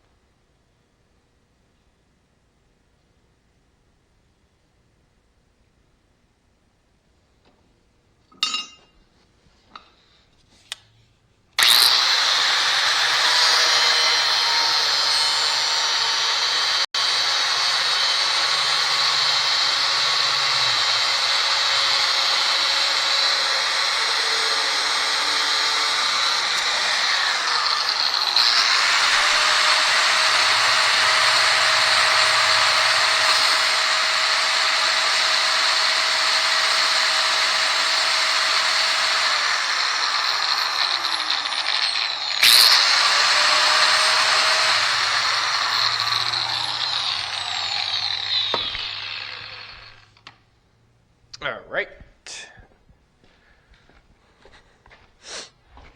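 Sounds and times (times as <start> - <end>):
power tool cutting metal: 11.6 - 50.3.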